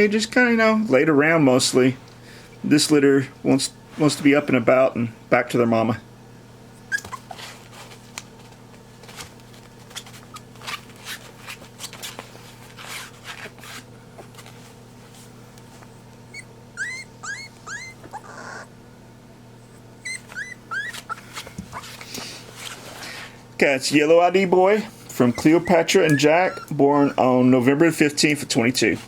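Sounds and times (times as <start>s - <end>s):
steady low hum: 0.0s - 29.0s
puppy whimpering squeaks: 6.8s - 7.6s, 16.3s - 18.7s, 19.7s - 22.0s, 25.1s - 27.3s
soft clicks and rustles: 7.5s - 16.2s.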